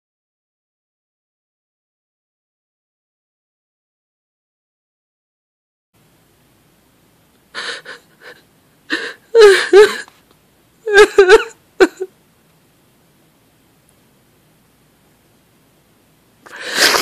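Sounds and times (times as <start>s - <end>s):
person gasping: 7.6s - 10.1s, 16.5s - 17.0s
person crying out: 8.9s - 10.0s, 10.9s - 12.1s.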